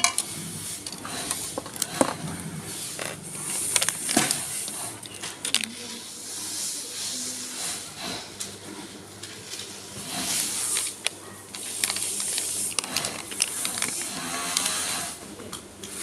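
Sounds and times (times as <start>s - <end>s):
small clicks and handling noises: 3.0s - 6.0s, 10.4s - 16.0s.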